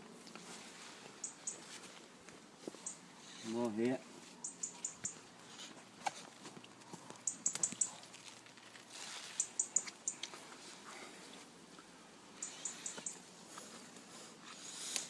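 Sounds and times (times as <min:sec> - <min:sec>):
small bird chirping: 0:01.1 - 0:01.8, 0:02.7 - 0:03.5, 0:04.3 - 0:05.7, 0:06.8 - 0:08.0, 0:09.2 - 0:10.4, 0:12.3 - 0:13.2
plants rustling and snapping: 0:04.7 - 0:11.9.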